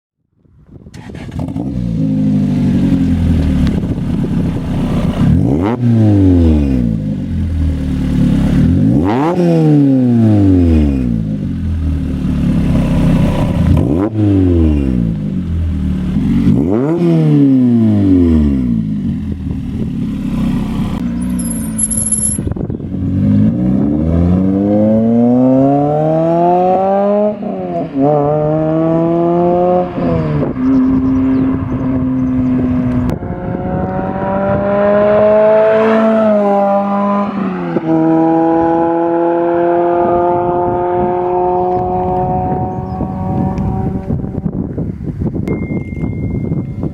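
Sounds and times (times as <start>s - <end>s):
car engine revving hard: 8.2s - 11.1s, 23.2s - 44.1s.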